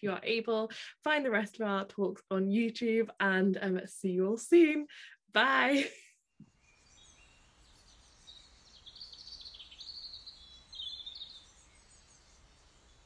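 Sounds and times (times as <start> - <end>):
high bird chirping and twittering: 6.5 - 13.0.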